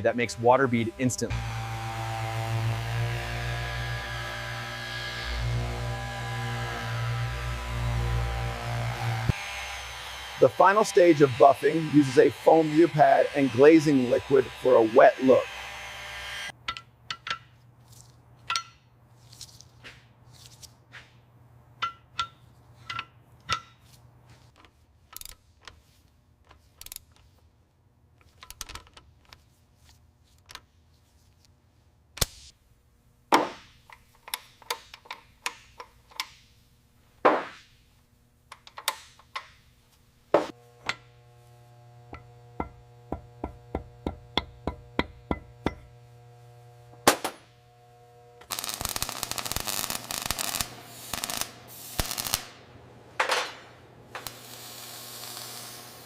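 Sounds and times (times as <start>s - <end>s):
metallic knocks and taps: 16.6s - 17.6s, 18.4s - 18.8s, 21.8s - 23.8s, 42.1s - 45.9s
low steady hum: 39.7s - 48.5s
multi-tone hum: 40.3s - 56.0s.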